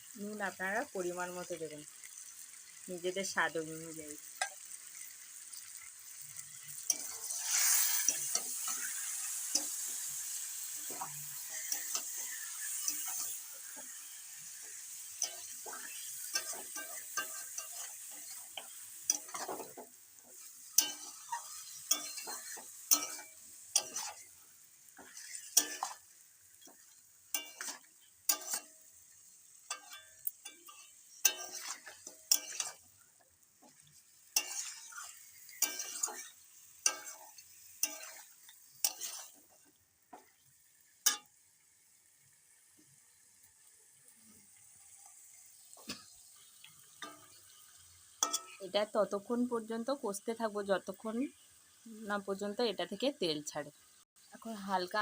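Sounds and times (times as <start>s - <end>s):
oil sizzling: 0.0s - 55.0s
spatula scraping and knocking in pan: 6.7s - 28.8s, 29.6s - 33.0s, 33.6s - 40.4s, 48.2s - 48.6s.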